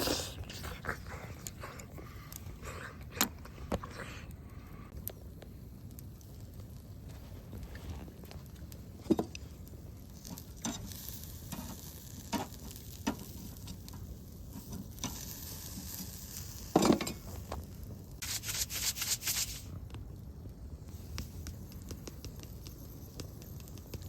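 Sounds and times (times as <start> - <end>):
sizzling: 4.9 - 24.0.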